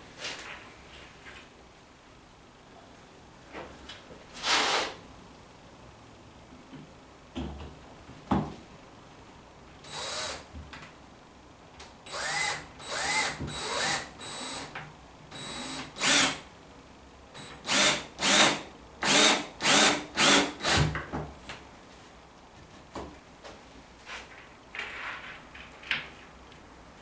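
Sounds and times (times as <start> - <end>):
drill driving screws into wood: 9.9 - 10.5, 12.1 - 14.7, 15.4 - 16.5, 17.4 - 20.9.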